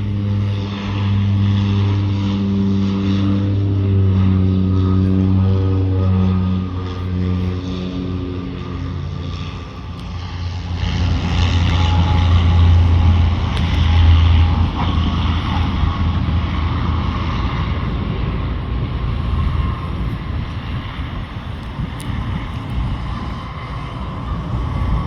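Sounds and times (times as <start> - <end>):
military airplane engine roar: 0.0 - 25.0.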